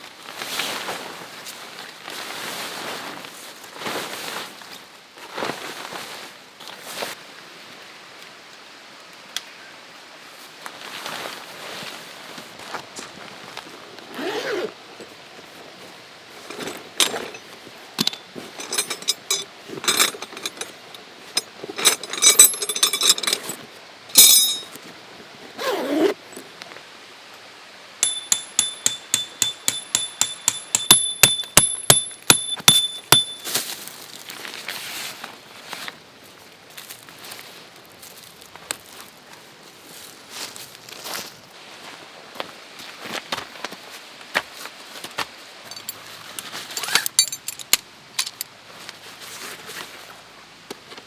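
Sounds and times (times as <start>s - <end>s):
camp gear swishing: 13.1s - 24.8s, 25.6s - 26.4s, 45.7s - 48.4s
metal clinks: 16.4s - 23.6s, 24.2s - 24.8s, 28.0s - 33.5s, 45.7s - 48.5s
rapid metallic ticks: 28.0s - 33.4s.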